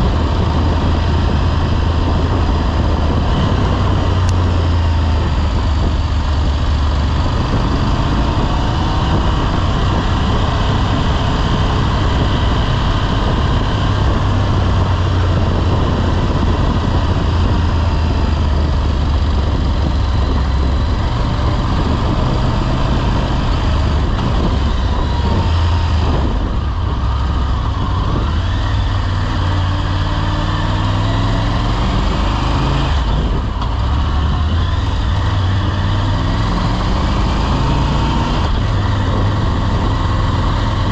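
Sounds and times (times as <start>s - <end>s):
motorcycle engine running: 0.0s - 40.9s
road and wind noise: 0.0s - 40.9s.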